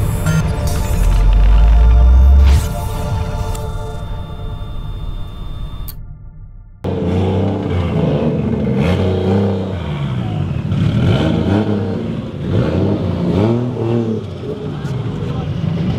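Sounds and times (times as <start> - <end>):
car engines revving: 0.0 - 3.7, 6.8 - 15.9.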